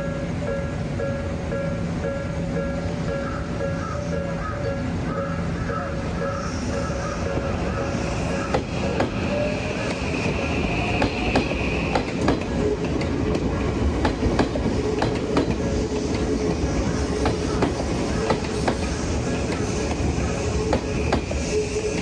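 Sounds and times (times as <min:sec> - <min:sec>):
train rumble: 0:00.0 - 0:22.0
high wheel squeal: 0:03.1 - 0:12.0, 0:16.6 - 0:22.0
train wheels clacking over joints: 0:07.4 - 0:22.0.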